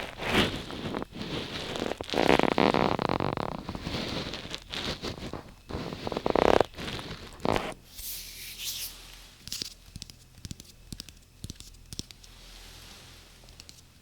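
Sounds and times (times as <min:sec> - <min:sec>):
rustling and scraping: 0:00.0 - 0:14.0
light taps and clicks: 0:09.9 - 0:12.3.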